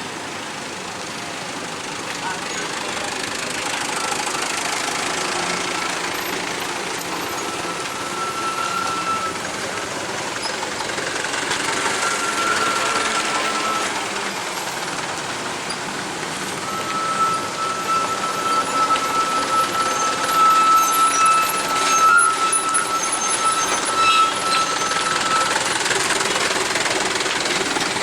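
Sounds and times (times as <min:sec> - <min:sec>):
heavy vehicle engine running: 0:00.0 - 0:28.0
faint high whine: 0:03.9 - 0:10.7, 0:11.4 - 0:27.0.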